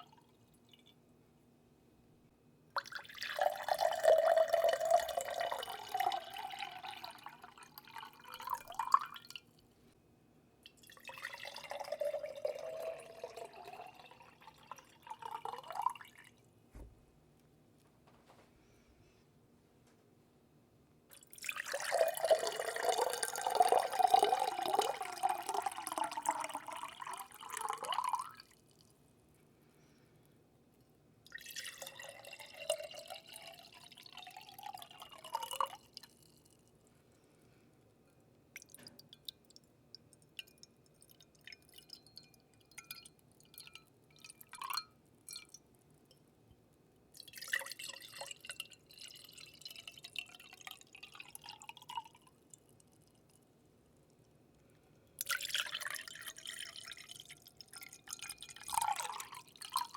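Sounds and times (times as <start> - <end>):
water pouring into a vessel: 2.8 - 9.5, 10.6 - 16.4, 21.1 - 28.8, 31.3 - 36.6, 38.6 - 45.6, 47.2 - 53.4, 55.2 - 59.9
water dripping: 38.5 - 46.3.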